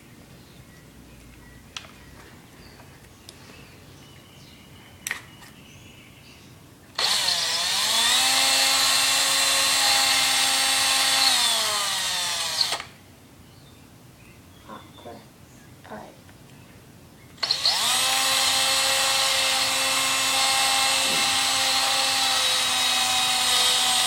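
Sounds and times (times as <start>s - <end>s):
electric drill whining: 6.9s - 13.0s, 17.4s - 24.0s.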